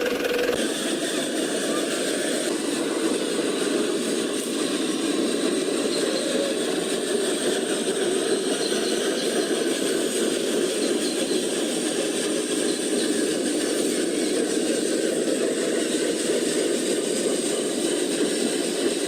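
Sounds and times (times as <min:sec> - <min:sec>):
model truck motor whirring: 0:00.0 - 0:01.1.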